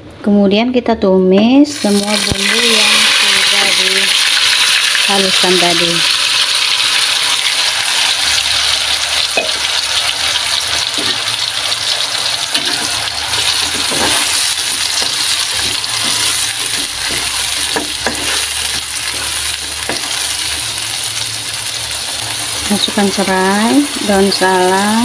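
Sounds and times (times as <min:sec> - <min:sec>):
paste sizzling in hot oil: 0:01.8 - 0:25.0
metal spatula scraping a wok: 0:12.5 - 0:20.7.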